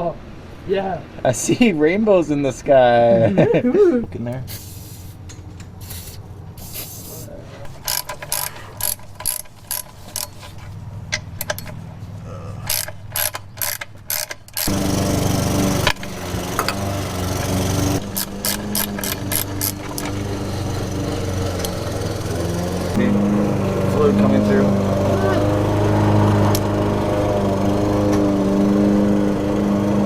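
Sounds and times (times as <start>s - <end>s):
socket ratchet clicking: 7.7s - 11.8s, 12.7s - 14.8s, 18.0s - 20.4s.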